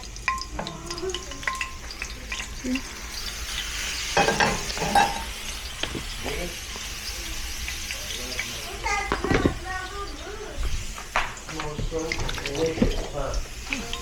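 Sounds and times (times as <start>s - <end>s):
stir-fry sizzling in a pan: 0.0s - 14.0s
utensil clacking and scraping pan: 3.2s - 6.4s, 9.0s - 9.7s, 10.7s - 13.7s.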